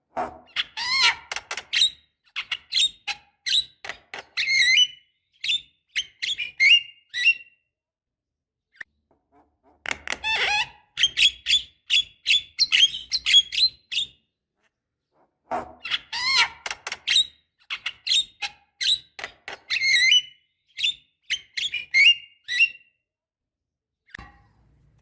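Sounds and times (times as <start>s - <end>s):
bird chirping and whistling: 19.7s - 22.8s.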